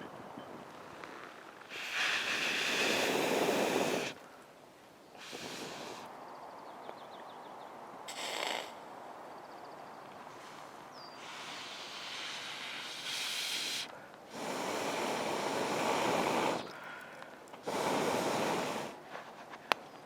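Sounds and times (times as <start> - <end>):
person blowing on a campfire: 1.7 - 4.2, 5.2 - 6.1, 8.1 - 8.8, 11.2 - 16.7, 17.6 - 19.1.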